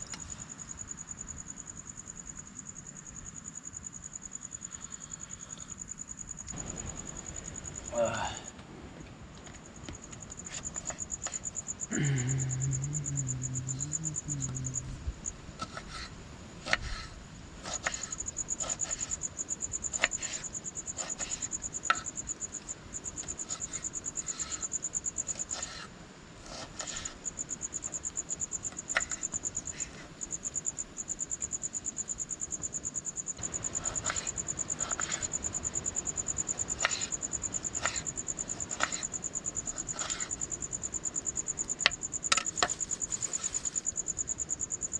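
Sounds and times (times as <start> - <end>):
crickets trilling: 0.0 - 44.9
brief low voice: 12.1 - 15.0.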